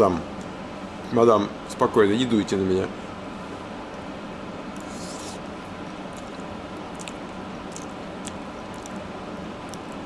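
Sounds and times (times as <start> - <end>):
background hum: 0.0 - 10.0
wet mouth chewing smacks: 6.1 - 9.0.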